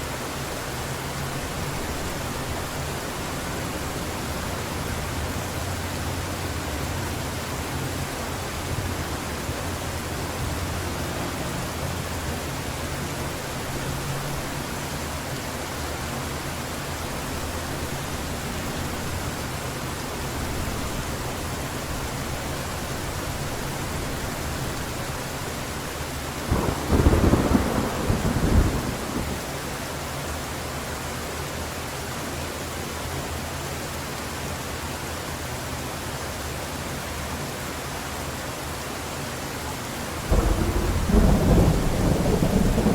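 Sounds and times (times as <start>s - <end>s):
heavy rain falling: 0.0s - 42.9s
thunder clap rumbling: 26.5s - 29.4s, 40.3s - 42.9s.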